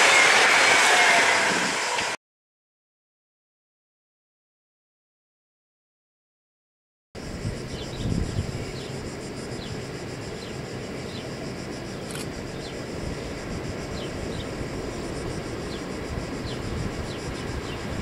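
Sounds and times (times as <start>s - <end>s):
distant train rumble: 0.0s - 2.2s, 7.2s - 18.0s.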